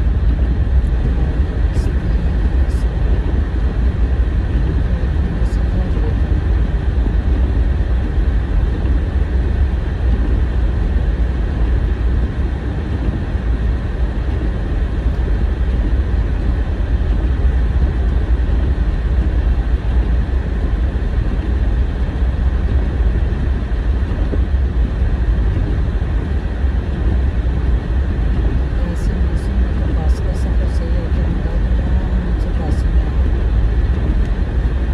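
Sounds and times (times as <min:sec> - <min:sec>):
car engine and tyre rumble: 0:00.0 - 0:34.9.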